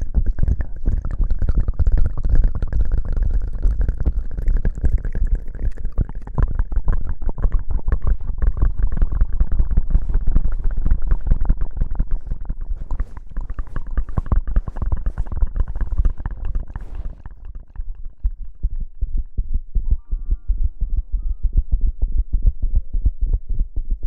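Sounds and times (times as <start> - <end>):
close-miked rubbing and scratching: 7.9 - 18.6
soft musical tones: 19.8 - 22.0.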